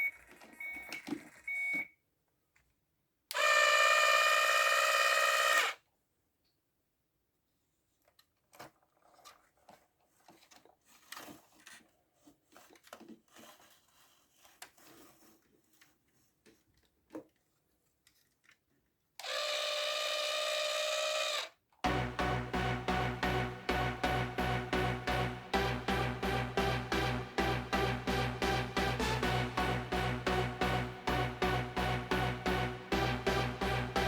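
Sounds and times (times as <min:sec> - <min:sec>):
handling toy car clicks and taps: 0:16.5 - 0:19.3
loud steady tone: 0:21.9 - 0:34.0
music with steady beat: 0:21.9 - 0:34.0.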